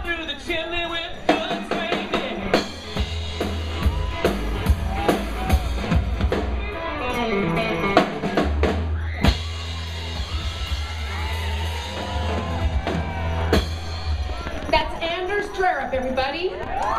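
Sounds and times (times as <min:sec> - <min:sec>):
live rock band playing: 0:01.2 - 0:15.1.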